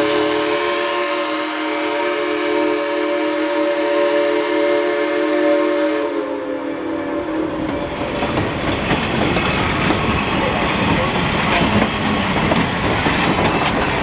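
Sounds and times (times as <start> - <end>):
steam locomotive chime whistle: 0.0 - 8.0
train rolling past: 0.0 - 14.0
wheels clicking on rail joints: 7.3 - 14.0.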